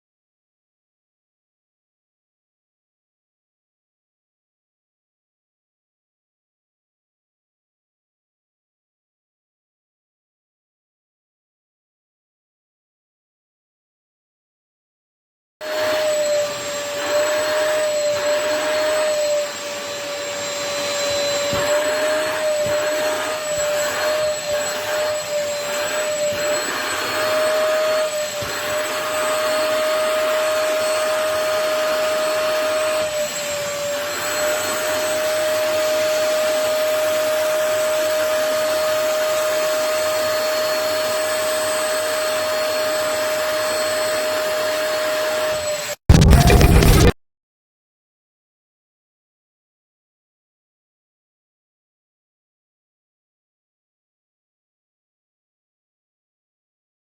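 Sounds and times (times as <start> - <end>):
wet-vacuum cleaner whining: 15.6 - 47.1.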